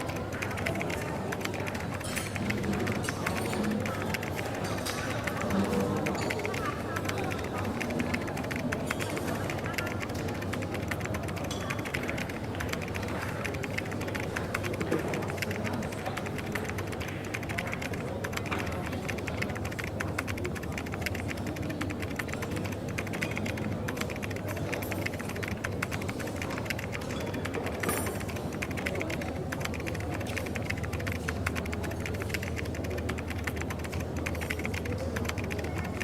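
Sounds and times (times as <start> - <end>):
coffee shop murmur: 0.0 - 36.0
rapid typing on keyboard: 0.0 - 36.0.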